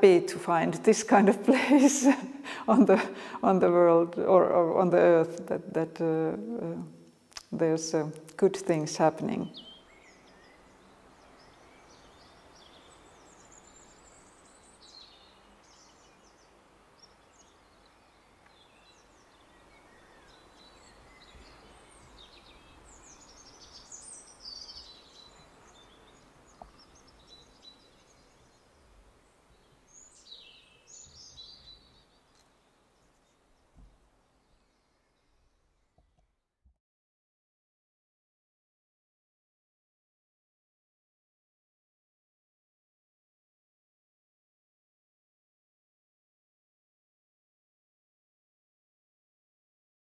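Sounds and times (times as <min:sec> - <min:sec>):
songbird chirps and trills: 0:00.0 - 0:36.2.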